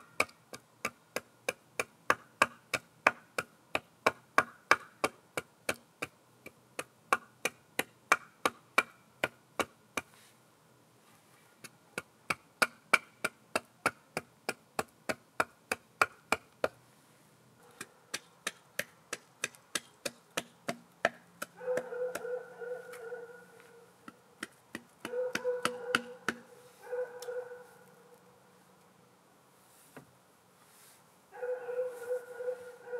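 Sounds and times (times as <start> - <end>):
sharp knocks on wood: 24.0 - 26.5.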